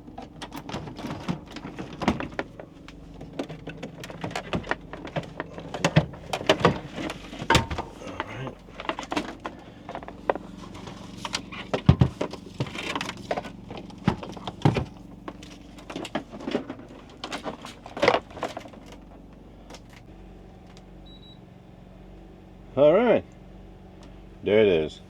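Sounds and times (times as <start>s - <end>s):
objects knocking and clattering: 0.0s - 19.0s
steady low hum: 0.0s - 20.4s.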